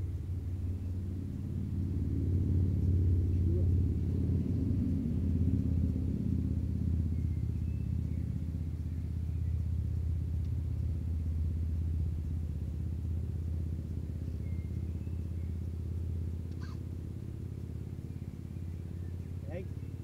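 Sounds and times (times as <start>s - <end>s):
low engine rumble: 0.0s - 20.0s
faint high chirps: 14.0s - 16.9s.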